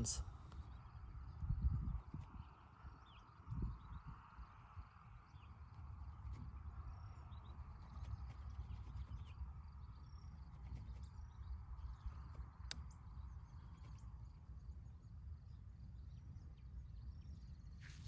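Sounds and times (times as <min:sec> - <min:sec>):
faint bird or insect chirps: 0:00.0 - 0:18.0.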